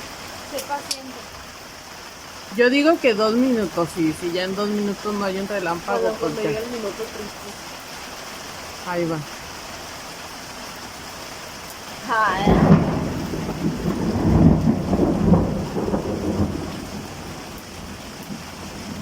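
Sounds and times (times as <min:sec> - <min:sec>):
steady rain: 0:00.0 - 0:19.0
thunder rumbling: 0:12.0 - 0:19.0.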